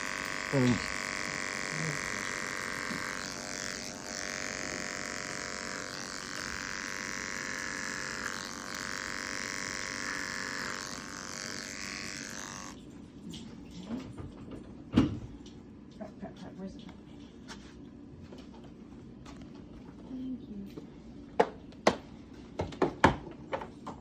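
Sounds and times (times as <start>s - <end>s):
electric hair clippers running: 0.0s - 12.8s.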